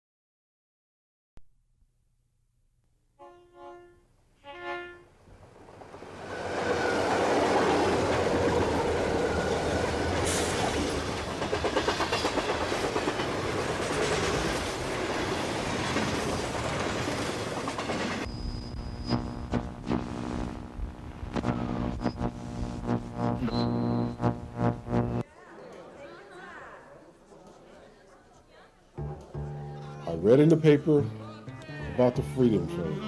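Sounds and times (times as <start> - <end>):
train horn blasts: 3.2 - 5.1
train rumbling: 5.4 - 18.4
wheels clacking on rails: 5.7 - 18.3.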